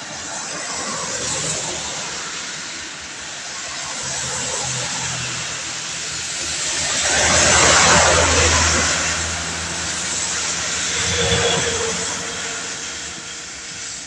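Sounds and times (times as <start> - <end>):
car passing on wet road: 0.0 - 14.0
rain hissing: 4.7 - 14.0.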